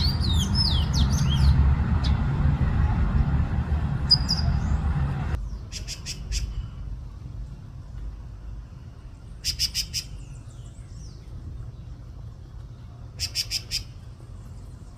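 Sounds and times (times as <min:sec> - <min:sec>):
songbird calling: 0:00.0 - 0:06.6, 0:13.2 - 0:14.0.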